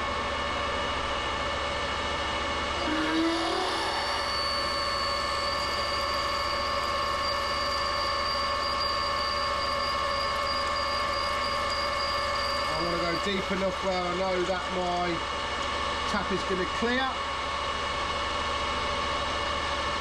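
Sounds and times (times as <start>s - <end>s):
metal lathe humming: 1.9s - 20.0s
high drill whine: 2.4s - 15.3s, 16.1s - 20.0s.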